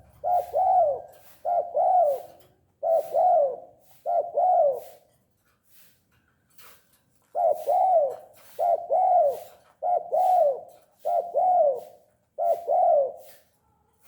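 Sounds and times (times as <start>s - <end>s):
dove cooing: 0.0s - 5.2s, 7.2s - 13.5s.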